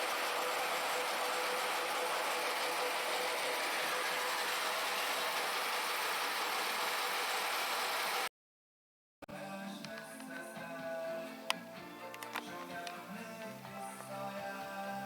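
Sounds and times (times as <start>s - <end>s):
hissing machine noise: 0.0s - 8.3s.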